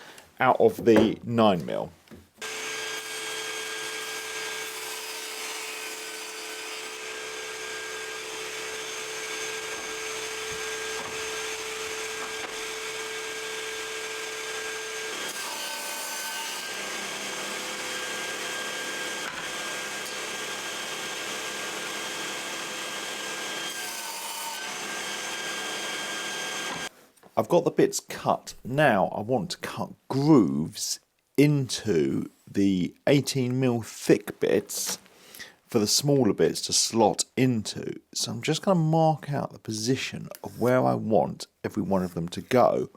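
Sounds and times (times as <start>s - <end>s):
power saw cutting: 2.4s - 26.9s.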